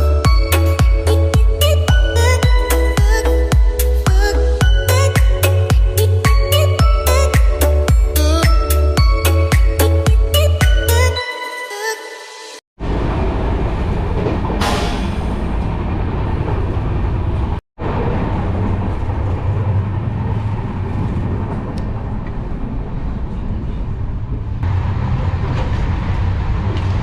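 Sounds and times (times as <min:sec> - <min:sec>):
train rumbling on rails: 0:12.8 - 0:27.0.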